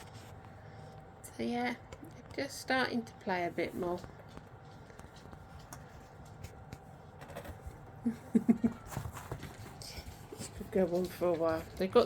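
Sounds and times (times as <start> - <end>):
puppies scuffling: 8.7 - 12.0.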